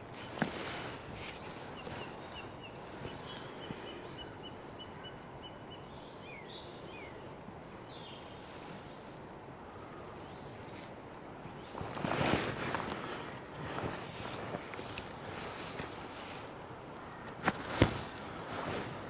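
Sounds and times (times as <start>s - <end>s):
songbirds singing: 0.0s - 19.0s.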